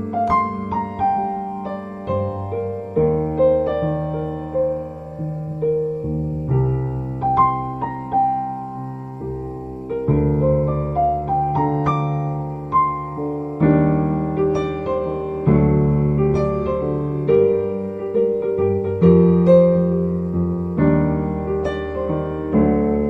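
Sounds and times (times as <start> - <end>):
solo piano music: 0.0 - 23.0.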